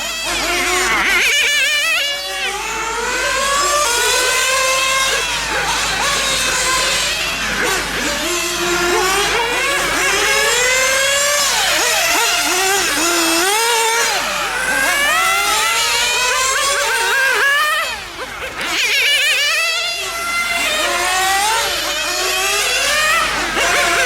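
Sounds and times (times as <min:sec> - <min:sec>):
small nitro engines revving: 0:00.0 - 0:24.0.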